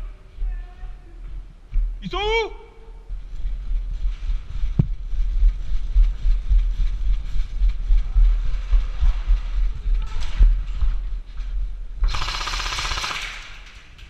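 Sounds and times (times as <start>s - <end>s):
wind rumble: 2.9s - 12.2s.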